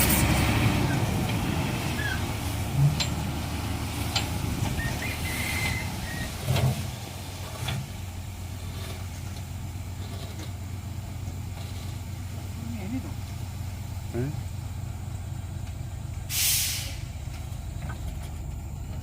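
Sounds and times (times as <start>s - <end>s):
sand unloading: 0.0s - 12.6s
truck engine running: 0.0s - 19.0s.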